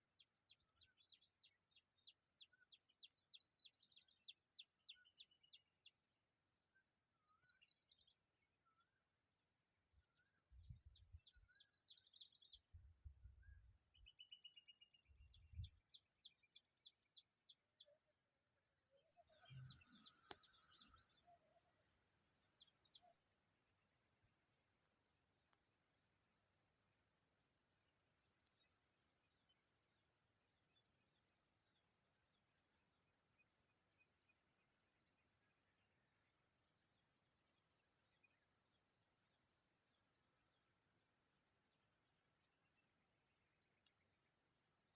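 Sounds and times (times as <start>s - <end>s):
small birds chirping: 19.0s - 24.6s
high insect drone: 19.0s - 44.9s.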